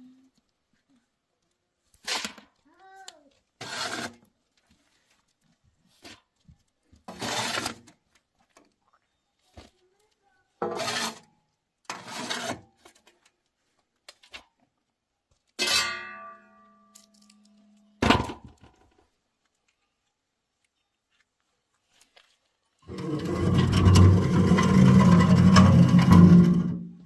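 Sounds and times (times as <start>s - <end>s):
metal objects clattering: 22.9s - 27.0s.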